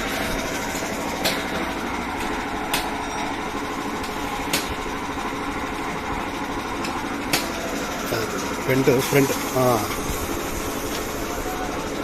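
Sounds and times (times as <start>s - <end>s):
pressure washer spraying: 8.8s - 11.6s.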